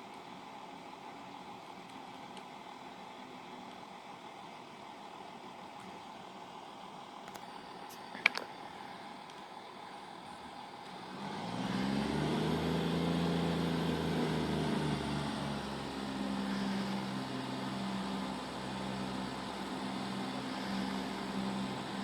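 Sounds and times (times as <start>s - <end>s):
train diesel engines droning: 12.2s - 22.0s.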